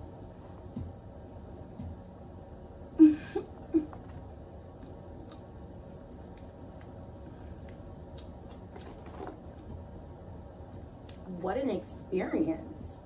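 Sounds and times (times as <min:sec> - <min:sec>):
chewing clicks: 0:04.8 - 0:07.0.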